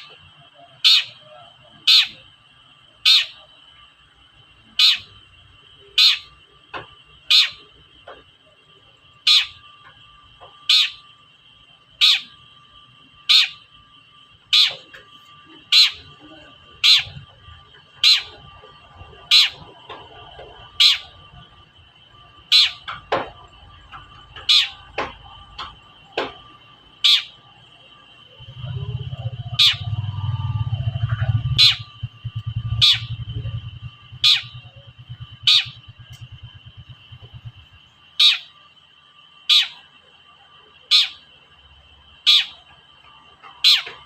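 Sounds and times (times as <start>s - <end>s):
steady high ringing tone: 0.0s - 44.0s
bird giving sharp call notes: 16.8s - 17.2s, 29.4s - 30.2s, 32.6s - 33.3s, 34.2s - 36.0s
low rumble: 28.4s - 37.9s.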